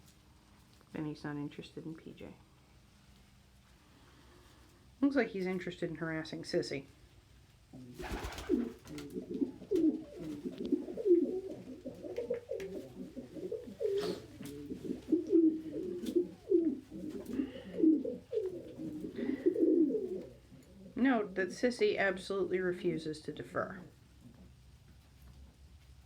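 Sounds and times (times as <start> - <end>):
pigeons cooing: 8.0 - 21.0.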